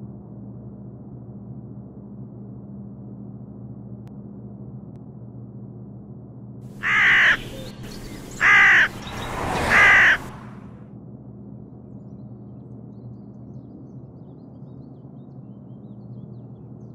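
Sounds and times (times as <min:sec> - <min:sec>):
crow cawing: 0:06.8 - 0:10.6.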